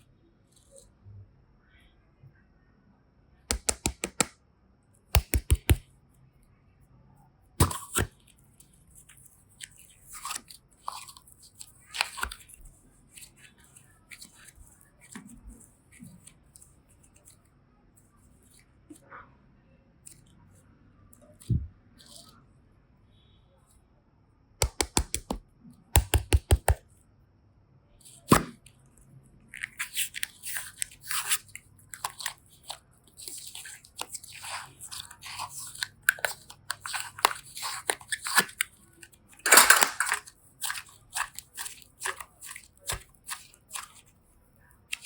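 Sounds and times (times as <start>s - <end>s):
slime crackling and squelching: 5.1s - 5.8s, 7.6s - 17.4s, 29.5s - 44.2s.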